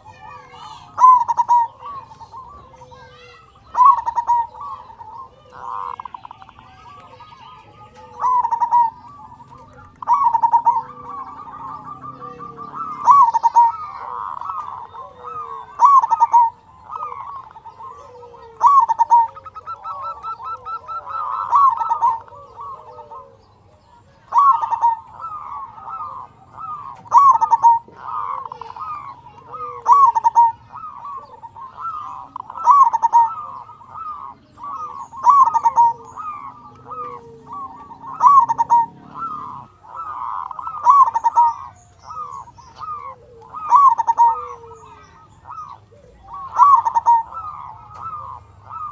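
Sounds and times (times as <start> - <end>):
dove cooing: 0.0 - 48.9.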